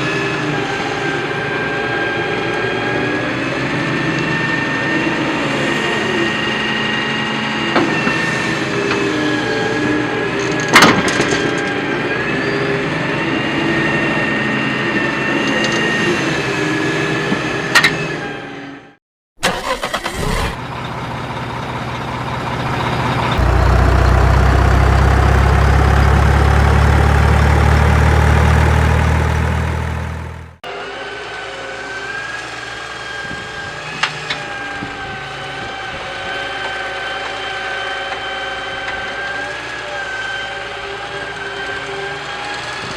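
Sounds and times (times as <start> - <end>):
toy truck motors whining: 19.4 - 20.6, 30.8 - 42.9
loud low drone: 22.5 - 30.6.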